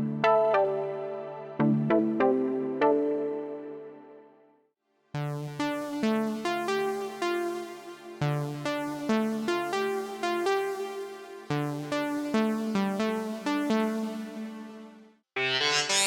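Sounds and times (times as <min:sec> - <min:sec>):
synthesizer melodic line: 0:05.2 - 0:14.4, 0:15.4 - 0:16.0
buzzy synthesizer patch: 0:15.4 - 0:16.0.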